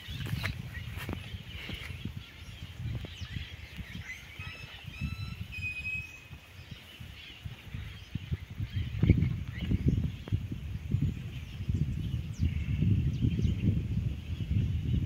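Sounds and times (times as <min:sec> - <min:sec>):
bird whistling: 0:04.1 - 0:06.3.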